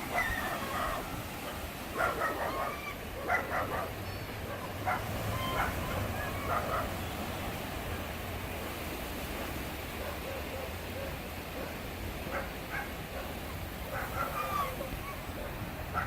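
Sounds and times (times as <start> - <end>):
sea waves rushing: 0.0 - 16.0
dog yipping: 0.1 - 6.9, 13.9 - 16.0.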